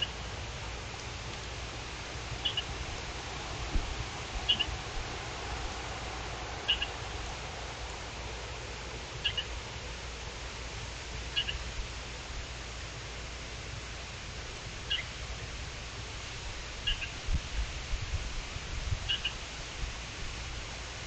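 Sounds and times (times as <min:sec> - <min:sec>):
steady hiss: 0:00.0 - 0:21.0
bird double chirp: 0:04.5 - 0:04.7, 0:06.7 - 0:06.9, 0:09.2 - 0:09.4, 0:11.4 - 0:11.6.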